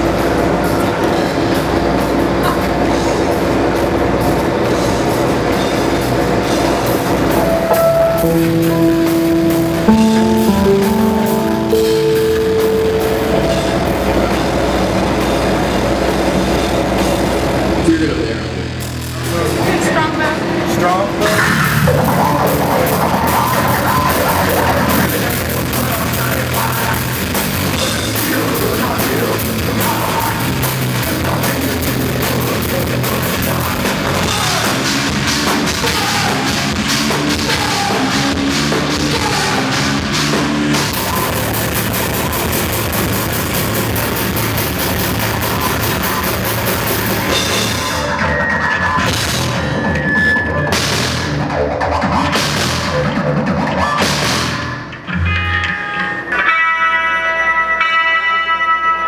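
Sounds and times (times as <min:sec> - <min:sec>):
rock band playing live: 0:00.0 - 0:17.9, 0:21.2 - 0:55.6
distorted guitars: 0:00.0 - 0:56.6
drum kit beat: 0:07.2 - 0:17.7.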